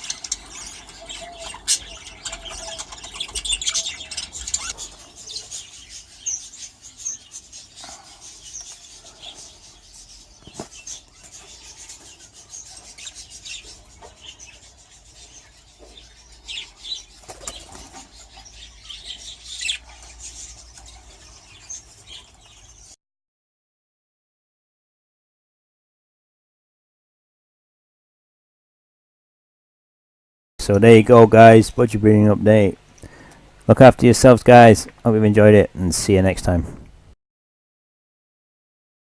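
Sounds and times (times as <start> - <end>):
budgerigars chirping: 0.0 - 23.0
wing flapping: 17.1 - 18.2.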